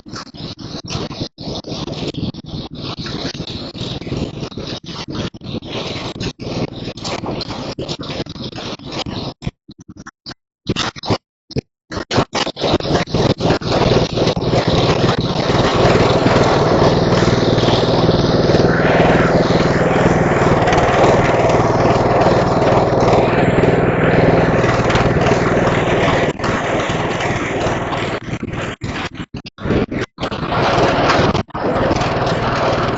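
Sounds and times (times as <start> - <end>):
riding mower engine running: 13.1 - 28.7, 30.4 - 32.9.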